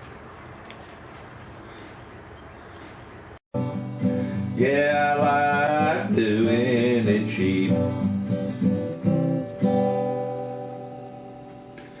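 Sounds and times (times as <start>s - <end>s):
acoustic guitar strumming: 3.6s - 12.0s
person singing: 4.5s - 8.0s.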